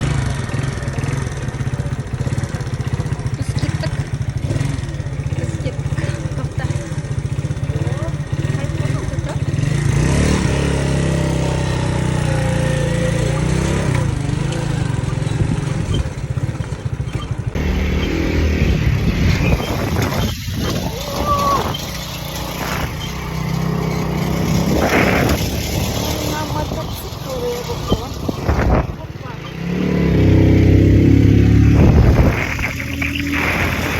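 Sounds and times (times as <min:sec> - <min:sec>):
motorcycle engine putter: 0:11.8 - 0:33.9.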